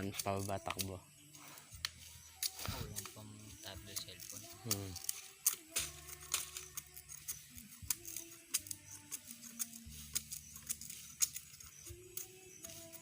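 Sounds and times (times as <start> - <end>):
sharp clicks and snaps: 0.0 - 1.0, 3.9 - 12.8.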